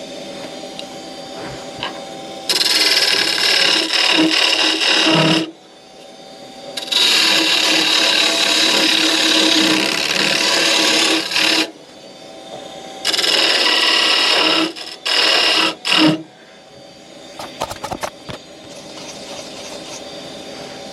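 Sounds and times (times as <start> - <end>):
wood lathe humming: 1.0 - 5.6, 6.6 - 12.2, 13.0 - 16.2, 17.4 - 20.9
turning tool cutting spinning wood: 2.5 - 5.5, 6.8 - 11.7, 13.0 - 16.2, 17.4 - 20.1.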